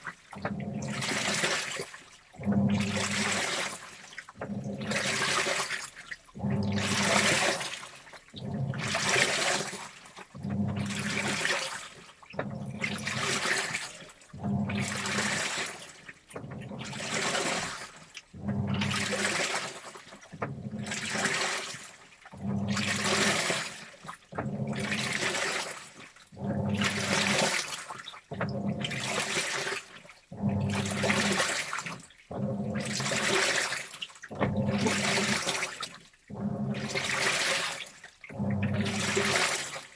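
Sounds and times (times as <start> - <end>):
washing machine water sloshing: 0.0 - 39.9
low motor hum: 2.4 - 3.3, 6.4 - 7.3, 8.4 - 9.1, 10.4 - 11.3, 14.4 - 15.2, 18.4 - 19.1, 30.3 - 31.3.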